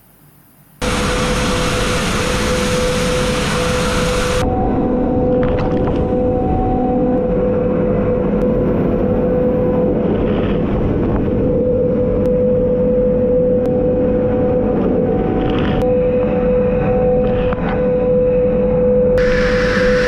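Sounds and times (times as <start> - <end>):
milling machine cutting with whine: 0.8 - 20.0.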